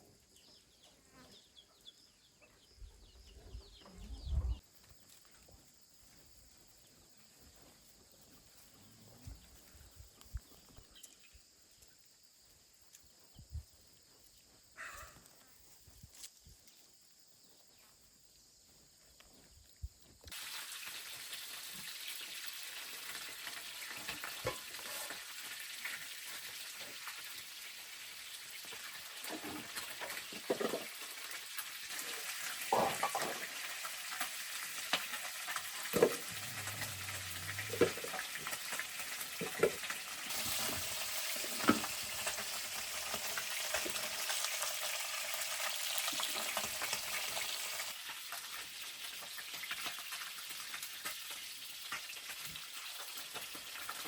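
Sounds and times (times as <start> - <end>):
food sizzling in oil: 20.3 - 54.0.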